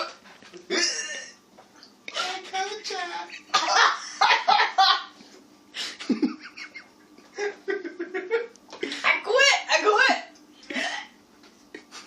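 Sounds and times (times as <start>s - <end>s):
people laughing: 3.4s - 5.2s, 5.8s - 8.5s.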